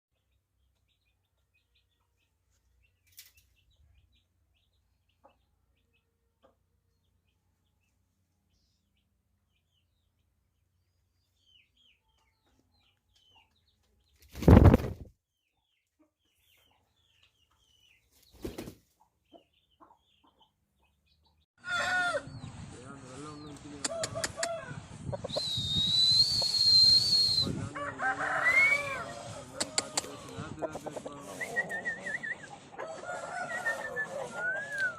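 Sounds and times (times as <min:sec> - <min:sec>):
small birds chirping: 0:00.1 - 0:21.5, 0:22.3 - 0:27.7
rooster flapping wings: 0:14.2 - 0:15.1, 0:18.4 - 0:18.8.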